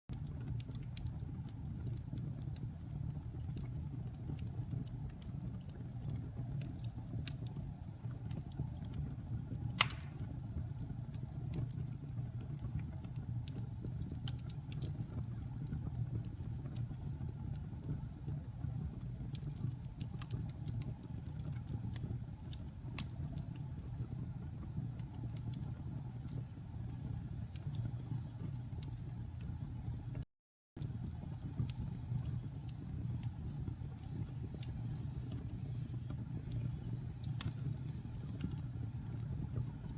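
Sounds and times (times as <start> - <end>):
wood fire crackling: 0.1 - 30.2, 30.8 - 39.9
sharp pop of fire: 9.8 - 10.4.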